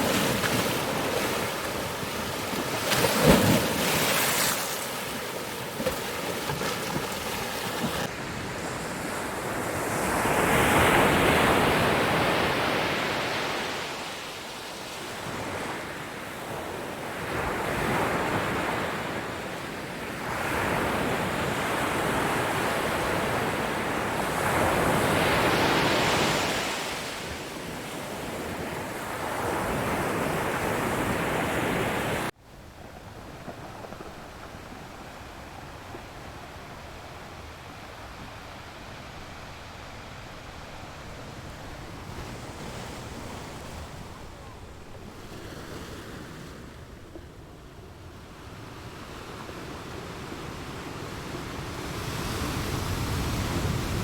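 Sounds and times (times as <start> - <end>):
ocean waves breaking: 0.0 - 14.2.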